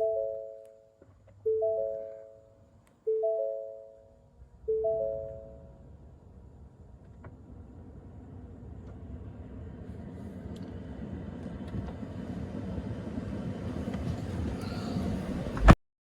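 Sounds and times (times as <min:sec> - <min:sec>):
rising three-note warning chime: 0:00.0 - 0:00.7, 0:01.5 - 0:02.4, 0:03.1 - 0:04.1, 0:04.7 - 0:05.7.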